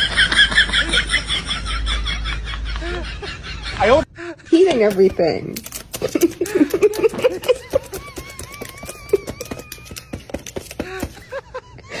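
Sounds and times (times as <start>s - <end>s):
sharp clicks: 4.8s - 11.2s.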